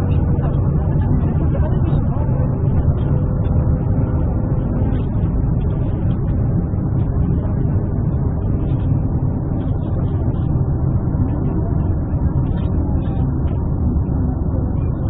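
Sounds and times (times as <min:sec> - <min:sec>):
low vehicle rumble: 0:00.0 - 0:15.0.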